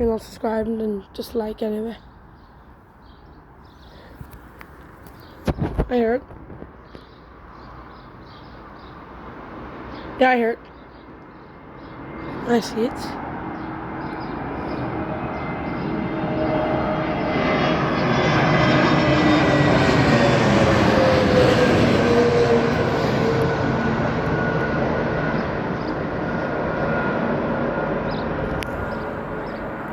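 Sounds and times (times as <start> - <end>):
jet airliner flying past: 5.3 - 10.2, 11.4 - 29.9.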